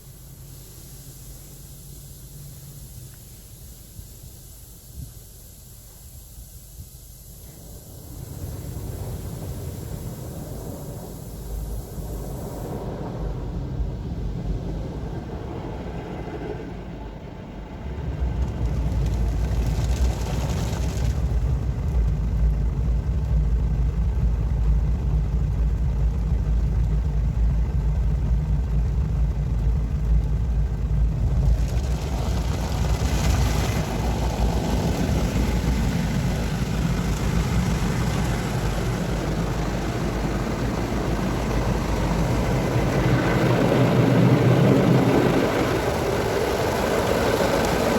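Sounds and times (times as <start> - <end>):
bright hiss: 0.0 - 13.4
car wash machinery drone: 0.0 - 47.9.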